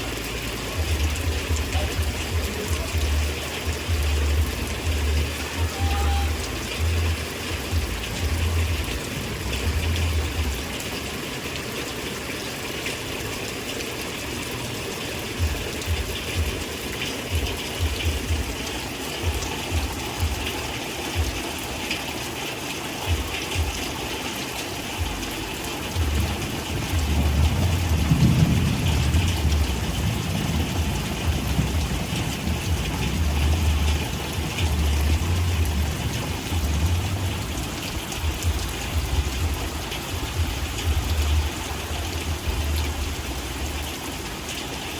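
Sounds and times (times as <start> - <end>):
steady rain: 0.0 - 44.9
low rumbles: 25.0 - 43.9.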